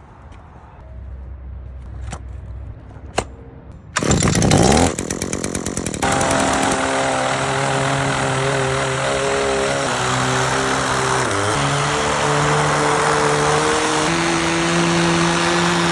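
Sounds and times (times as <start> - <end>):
two-stroke engine revving: 4.0 - 15.9.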